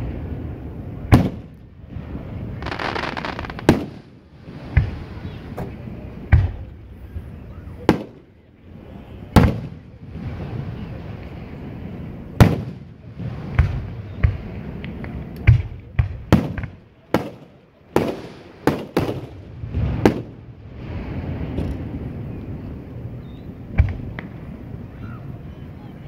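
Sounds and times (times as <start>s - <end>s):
fireworks booming: 1.1s - 8.3s, 9.2s - 11.0s, 12.3s - 14.8s, 15.5s - 22.2s.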